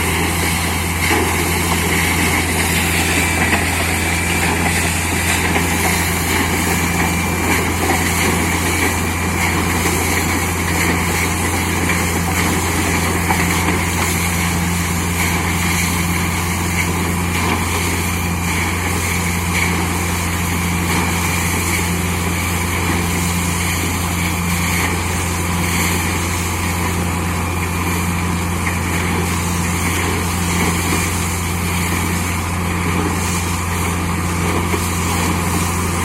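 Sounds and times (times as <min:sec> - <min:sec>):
drilling rig engine humming: 0:00.0 - 0:36.0.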